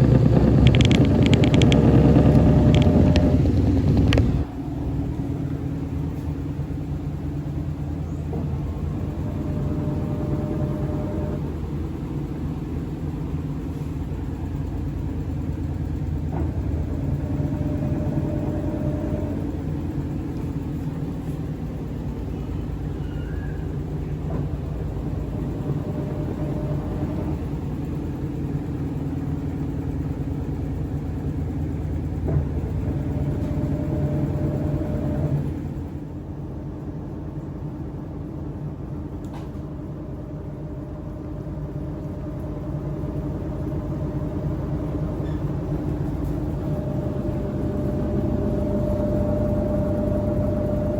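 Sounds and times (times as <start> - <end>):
washing machine spin hum: 0.0 - 50.9
faint high whine: 46.1 - 50.9.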